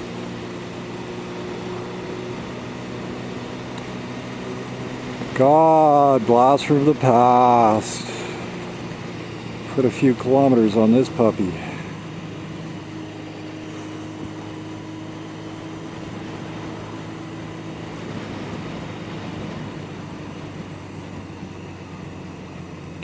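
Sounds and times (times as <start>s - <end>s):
motorcycle engine running steadily: 0.0s - 23.0s.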